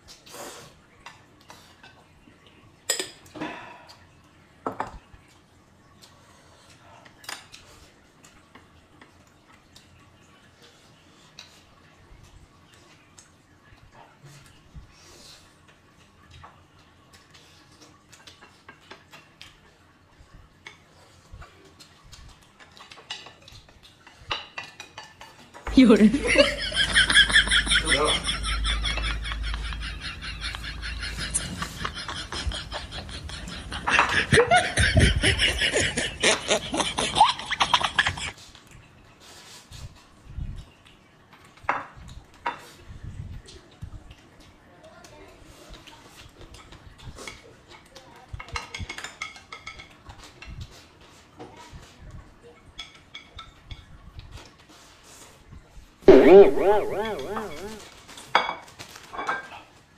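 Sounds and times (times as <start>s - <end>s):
utensils tapping dishes: 22.8s - 38.3s
laughter: 26.0s - 38.3s, 56.1s - 57.8s.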